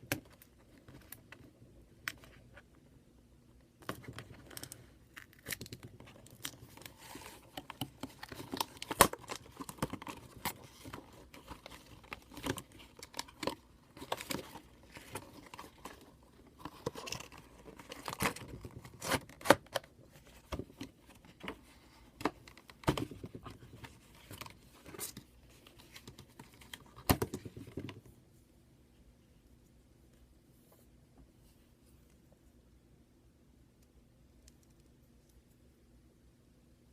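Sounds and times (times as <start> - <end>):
clicks and knocks handling packaging: 3.8 - 28.1.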